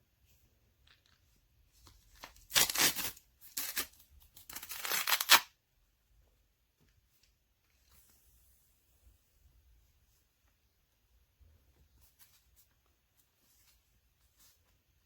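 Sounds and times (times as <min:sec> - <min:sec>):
loud ripping tears: 0:04.5 - 0:05.5.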